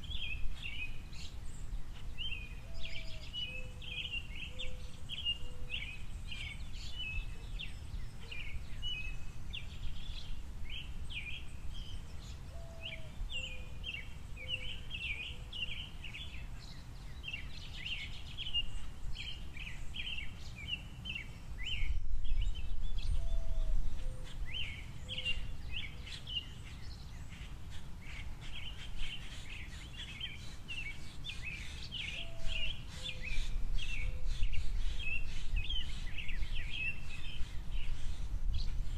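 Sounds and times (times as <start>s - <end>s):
small songbirds chirping: 0.0s - 38.9s
faint low bird call: 21.6s - 38.9s.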